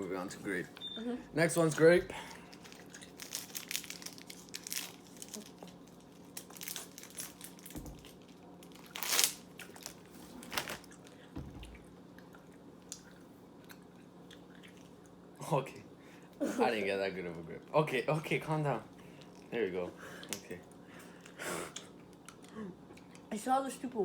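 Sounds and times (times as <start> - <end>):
faint steady hum: 0.0 - 24.0
packaging crinkling: 2.4 - 11.2.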